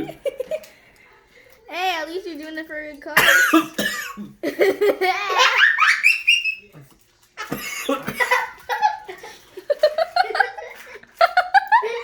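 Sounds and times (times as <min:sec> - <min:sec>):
people laughing: 0:00.0 - 0:00.7, 0:07.7 - 0:12.0.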